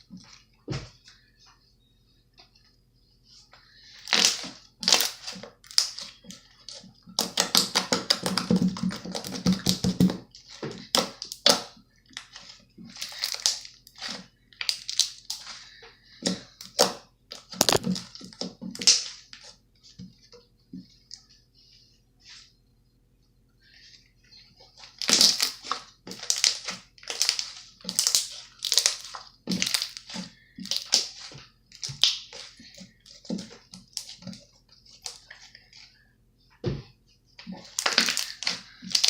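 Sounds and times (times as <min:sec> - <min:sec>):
sticky slime clicks and pops: 0:17.6 - 0:17.8.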